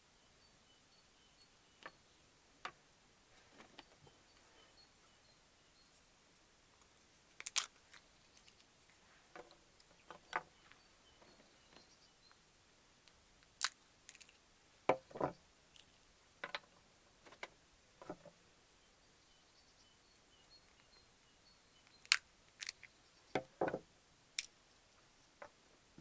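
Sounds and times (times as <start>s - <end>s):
faint bird chirps: 0.0s - 2.4s, 3.3s - 6.1s, 9.9s - 12.5s, 18.7s - 23.4s.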